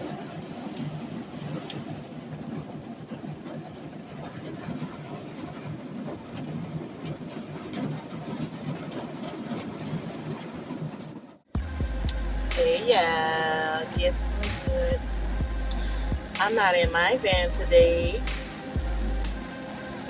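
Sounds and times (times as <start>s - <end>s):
vehicle engine and road rumble: 0.0s - 20.0s
small rattles and clicks: 0.7s - 11.3s.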